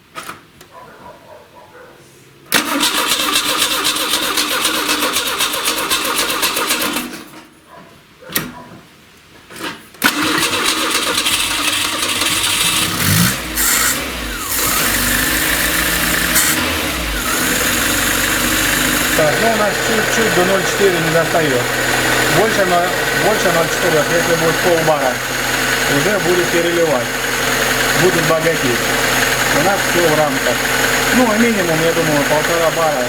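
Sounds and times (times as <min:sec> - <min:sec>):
starter motor cranking: 0:02.5 - 0:07.2, 0:10.0 - 0:33.0
car engine running: 0:10.3 - 0:33.0.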